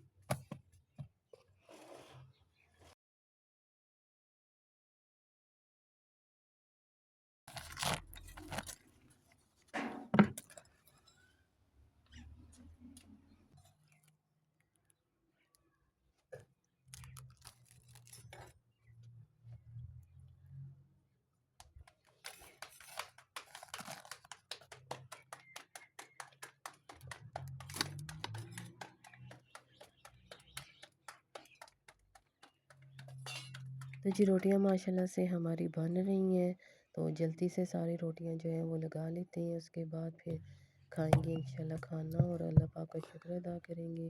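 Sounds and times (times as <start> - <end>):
dough thuds and knocks: 41.0 - 42.7.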